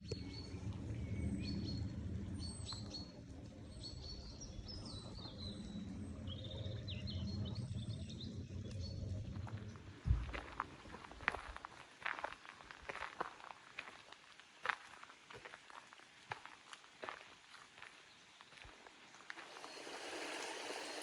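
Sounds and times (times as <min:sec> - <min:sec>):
birds chirping and singing: 0:00.0 - 0:09.8
steady low rumble: 0:00.0 - 0:11.8.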